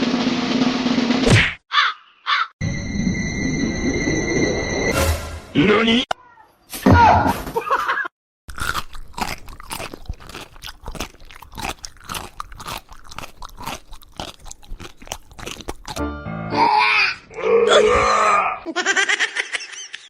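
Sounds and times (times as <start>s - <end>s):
crunchy chewing: 8.5s - 16.0s.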